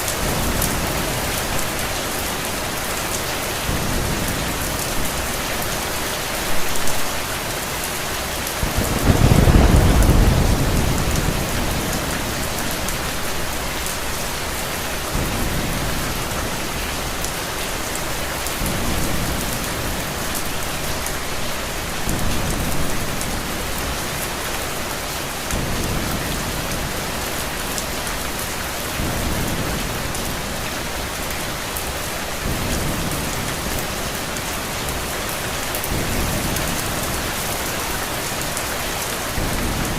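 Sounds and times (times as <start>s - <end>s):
heavy rain: 0.0s - 39.9s
thunder rumbling: 8.3s - 17.2s.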